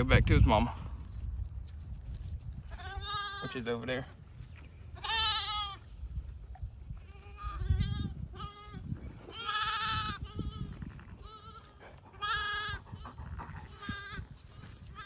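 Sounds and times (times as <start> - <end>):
sheep and lambs bleating: 2.7 - 3.7, 4.9 - 5.9, 7.1 - 15.0.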